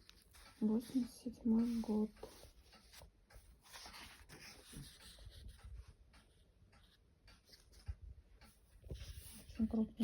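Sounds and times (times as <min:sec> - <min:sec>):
book pages turning: 0:00.0 - 0:06.4
soft ticks: 0:00.0 - 0:10.0.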